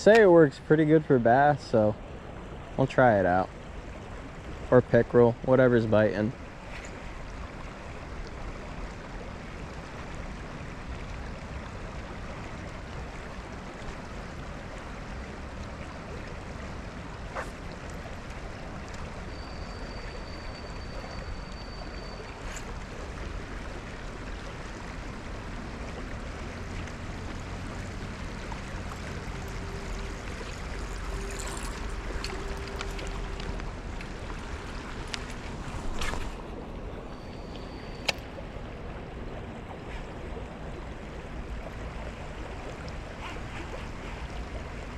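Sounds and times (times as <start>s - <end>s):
low steady hum: 0.0s - 44.9s
water lapping against boat hull: 6.4s - 44.9s
thin high whistle: 19.2s - 22.7s, 37.1s - 38.2s.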